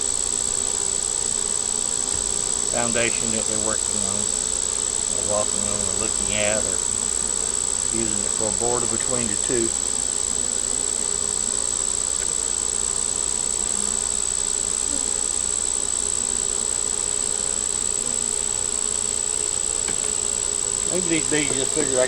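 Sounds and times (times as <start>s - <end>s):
bees buzzing: 0.0s - 22.0s
high-pitched whine: 2.1s - 7.2s, 19.8s - 22.0s.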